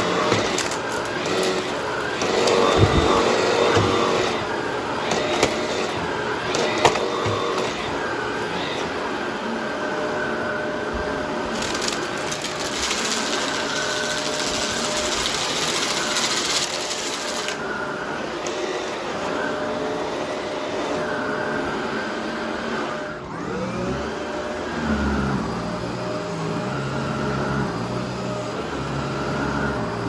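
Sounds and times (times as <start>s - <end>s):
vacuum cleaner running: 0.0s - 30.0s
debris crackling in vacuum: 11.5s - 17.6s.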